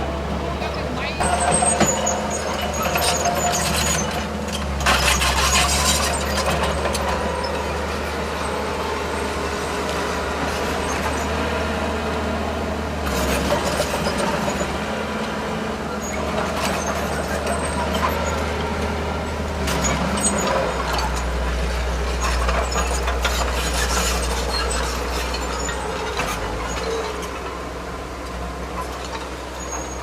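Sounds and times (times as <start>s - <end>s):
machinery clattering: 0.0s - 1.7s
diesel machinery engine drone: 0.0s - 30.0s.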